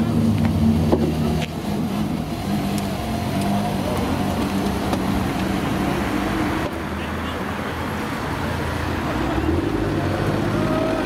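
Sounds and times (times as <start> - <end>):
car engine at low revs: 0.0 - 6.8.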